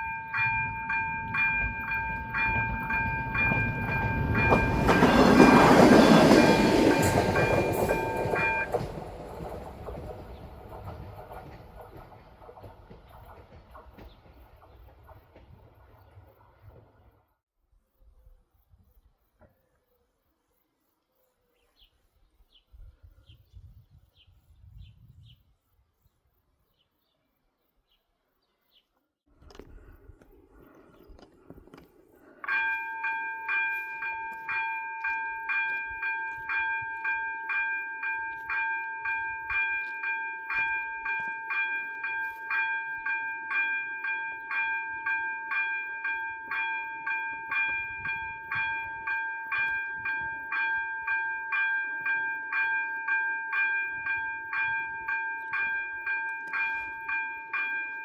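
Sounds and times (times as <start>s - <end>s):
level crossing warning bells: 0.0s - 12.1s, 32.3s - 58.0s.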